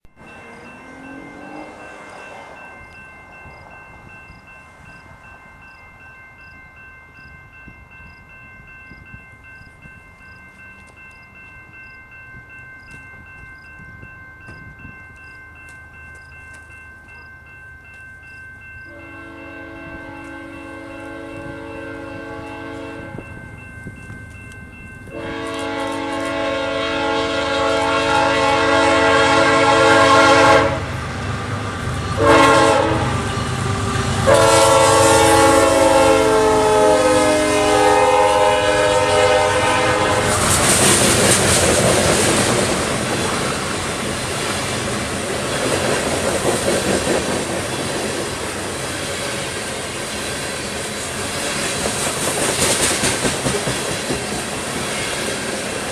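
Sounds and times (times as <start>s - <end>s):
locomotive engines rumbling: 0.1s - 52.3s
locomotive horn blasts: 18.9s - 23.3s, 25.1s - 31.0s, 32.2s - 33.4s, 34.2s - 40.5s
train wheels clickety-clack: 23.9s - 26.6s, 40.0s - 55.9s.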